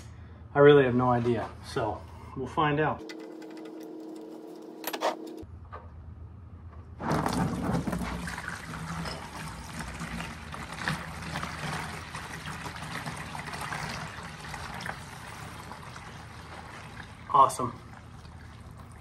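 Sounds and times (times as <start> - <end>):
liquid pouring from drain hole: 7.0 - 19.0.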